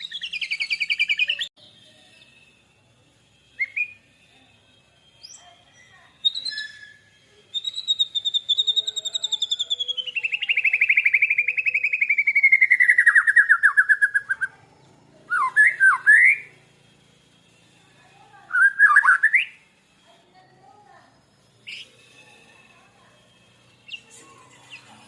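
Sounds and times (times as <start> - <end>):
caged bird trilling: 0.0 - 1.5, 6.2 - 14.6, 15.3 - 16.6, 18.5 - 19.7, 21.6 - 22.1, 23.8 - 25.0.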